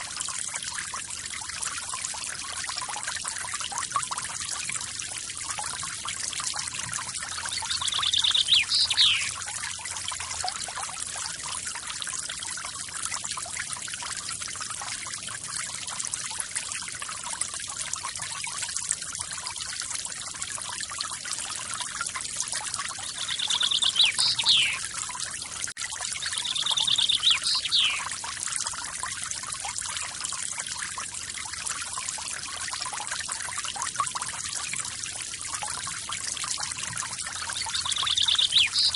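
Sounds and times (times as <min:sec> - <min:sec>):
bird trilling call: 0:07.5 - 0:09.4, 0:23.1 - 0:24.8, 0:26.2 - 0:28.1, 0:37.6 - 0:38.9.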